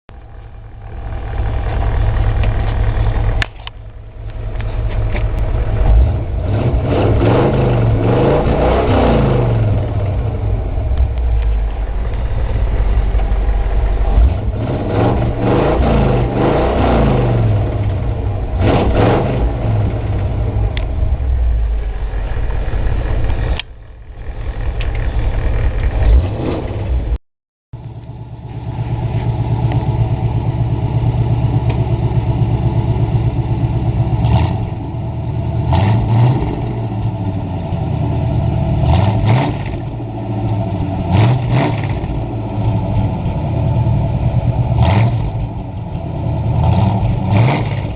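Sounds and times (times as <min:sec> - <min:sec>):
car engine idling and revving: 0:00.1 - 0:27.2, 0:27.8 - 0:47.9.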